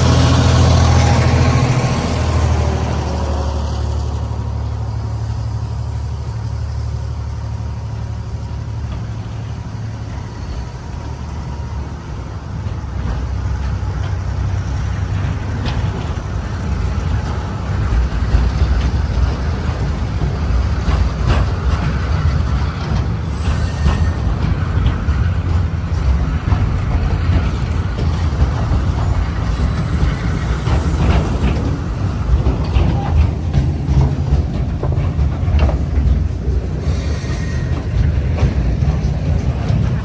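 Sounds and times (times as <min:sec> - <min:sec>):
diesel locomotive rumbling: 0:00.0 - 0:40.0
train clicks and clatter: 0:00.0 - 0:40.0.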